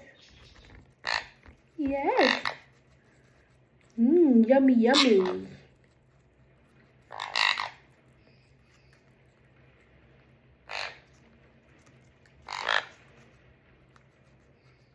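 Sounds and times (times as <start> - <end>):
parrot raspy calls: 0.1 - 2.7, 4.8 - 5.7, 7.0 - 8.0, 10.6 - 11.2, 12.4 - 13.2.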